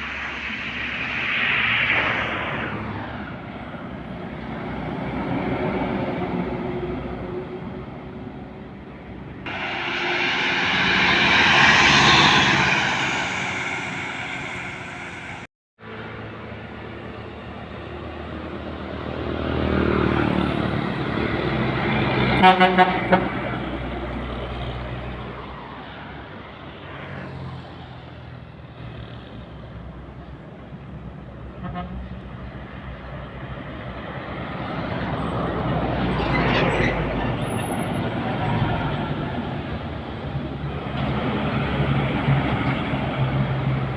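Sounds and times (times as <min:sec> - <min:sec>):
large vehicle passing: 0:00.0 - 0:08.2, 0:09.5 - 0:22.4
heavy truck passing: 0:00.0 - 0:43.9
heavy vehicle engine running: 0:08.7 - 0:18.7.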